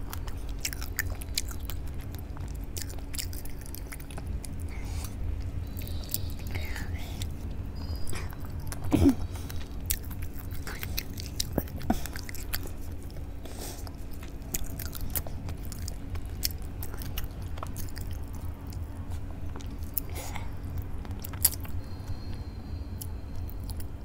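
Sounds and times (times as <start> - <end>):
person chewing with wet smacks: 0.0 - 24.0
steady low hum: 0.0 - 24.0.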